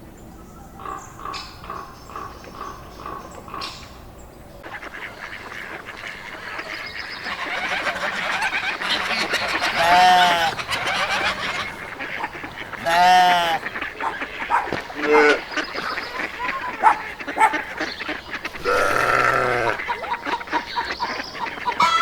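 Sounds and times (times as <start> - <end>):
din of animal calls: 0.1 - 22.0
loud short rising-falling calls: 18.5 - 19.8.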